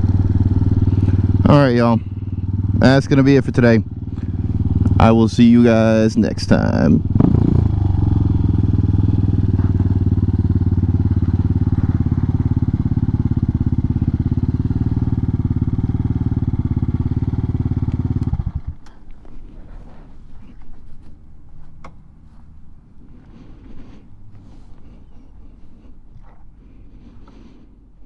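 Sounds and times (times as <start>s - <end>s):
motorcycle engine idling: 0.0s - 20.1s.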